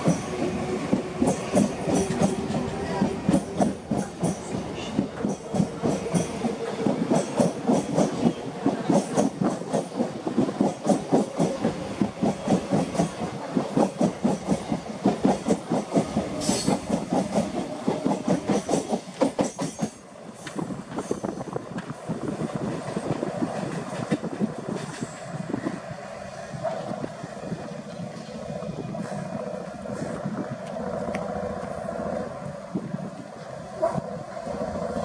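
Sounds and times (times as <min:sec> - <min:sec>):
train wheels clattering over joints: 0:00.0 - 0:25.9.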